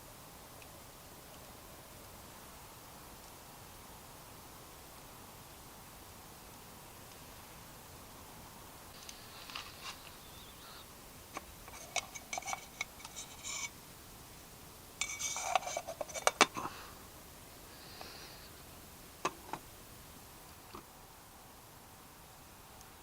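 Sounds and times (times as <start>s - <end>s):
metal cookware clinking and scraping: 11.7s - 13.7s, 15.0s - 16.6s.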